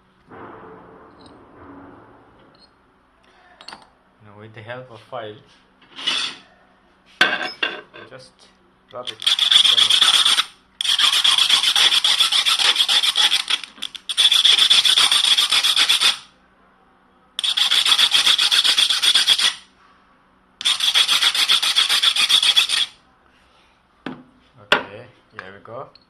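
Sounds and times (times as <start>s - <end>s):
hand file rasping on metal: 9.2s - 13.5s, 14.1s - 16.3s, 17.4s - 19.6s, 20.6s - 23.0s.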